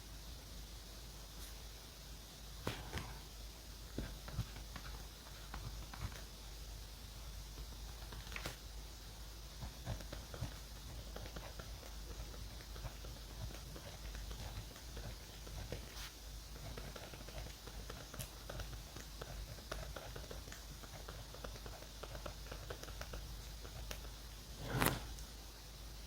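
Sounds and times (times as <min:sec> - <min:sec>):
pen scratching on paper: 0:09.6 - 0:25.1.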